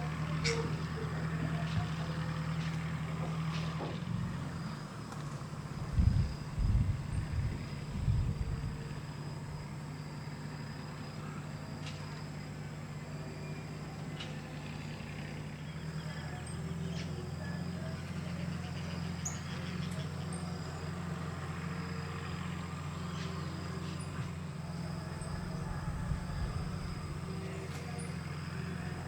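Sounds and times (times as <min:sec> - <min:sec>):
motor humming: 0:00.0 - 0:29.0
faint bird chirps: 0:14.7 - 0:29.0.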